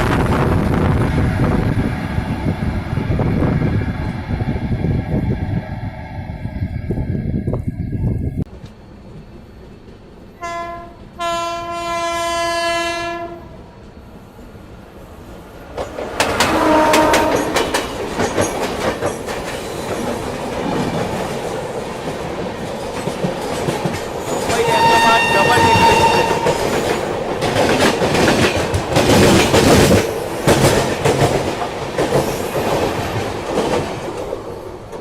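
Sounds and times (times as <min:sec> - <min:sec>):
train rushing past: 0:00.0 - 0:35.0
locomotive horn blasts: 0:10.4 - 0:13.5, 0:16.5 - 0:17.6, 0:24.5 - 0:26.7.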